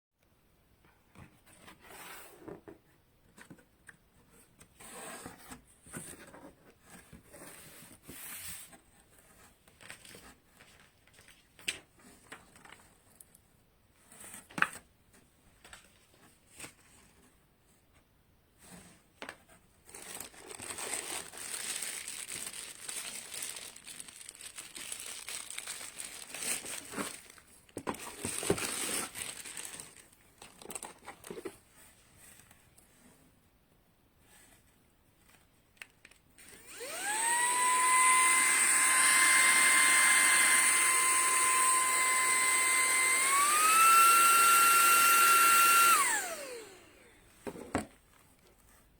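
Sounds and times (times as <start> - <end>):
packaging crinkling: 19.8 - 31.5.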